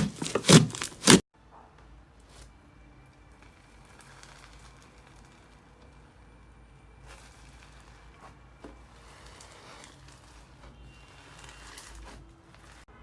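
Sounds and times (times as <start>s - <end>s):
slime squishing by hand: 0.0s - 1.2s.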